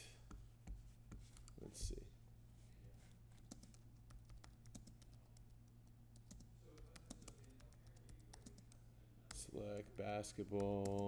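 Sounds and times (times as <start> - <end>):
typing on computer keyboard: 3.4 - 5.5, 6.1 - 8.8, 9.8 - 11.0.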